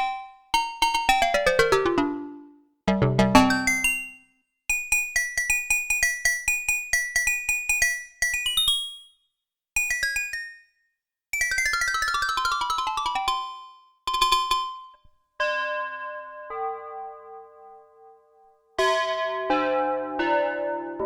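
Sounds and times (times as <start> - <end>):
synthesizer playing short percussive notes: 1.4 - 4.2.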